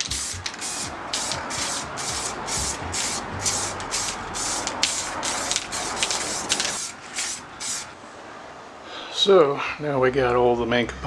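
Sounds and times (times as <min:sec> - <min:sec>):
spray can hissing bursts: 0:00.0 - 0:08.0.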